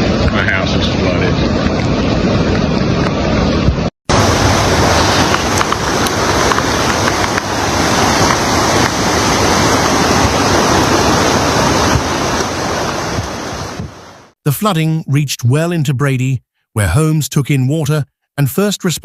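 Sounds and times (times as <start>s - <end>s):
wind buffeting microphone: 0.0s - 14.2s
floodwater rushing: 0.0s - 14.4s.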